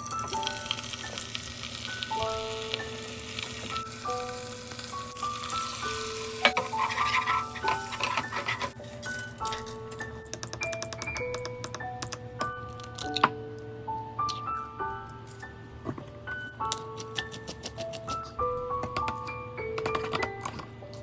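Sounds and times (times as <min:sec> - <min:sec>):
food sizzling in a frying pan: 0:00.0 - 0:08.8
background music of held notes: 0:00.0 - 0:21.0.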